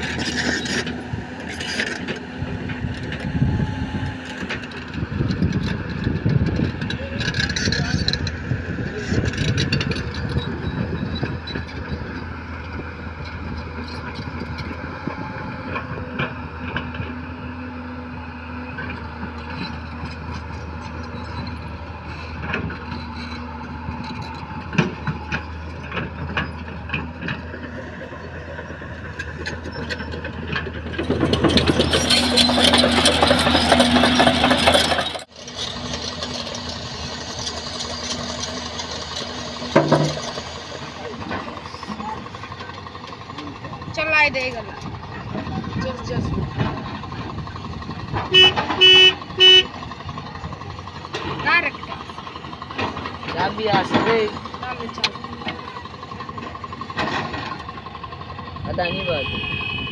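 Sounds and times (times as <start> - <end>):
diesel machinery engines running: 0.0 - 59.9
clanks and knocks: 22.3 - 35.3, 37.4 - 44.1, 44.8 - 49.3, 49.9 - 58.2.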